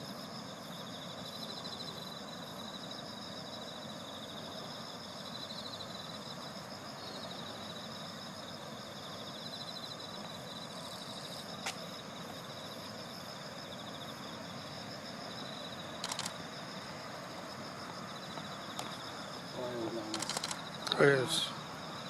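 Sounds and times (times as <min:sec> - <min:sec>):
insects trilling: 0:00.0 - 0:22.0
sharp click: 0:16.0 - 0:16.4, 0:20.2 - 0:21.0.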